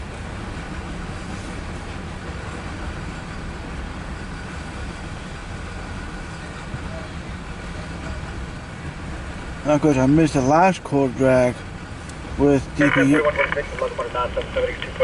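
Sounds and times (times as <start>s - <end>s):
freight train wheels rumbling on track: 0.0s - 15.0s.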